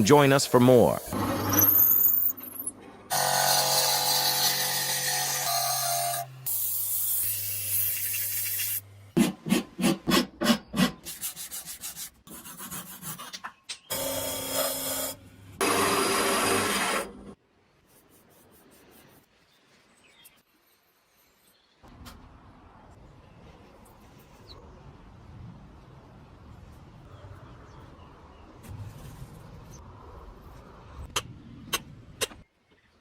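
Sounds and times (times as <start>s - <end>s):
power tool grinding: 13.9s - 17.3s.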